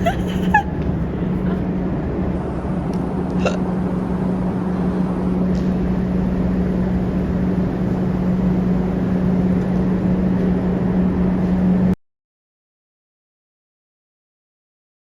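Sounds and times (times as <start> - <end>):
vehicle running with low hum: 0.0 - 12.0.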